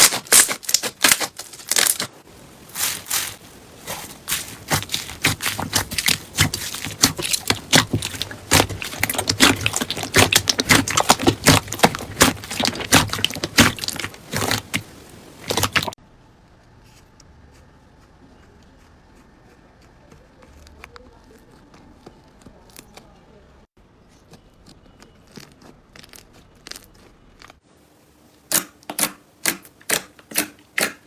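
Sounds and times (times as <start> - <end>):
slime squelching and popping: 0.0 - 16.0, 28.5 - 31.0.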